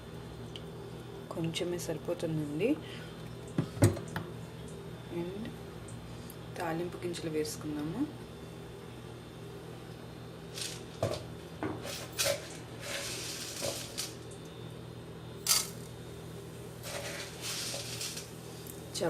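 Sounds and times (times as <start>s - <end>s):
seeds crackling in hot oil: 10.4s - 19.0s.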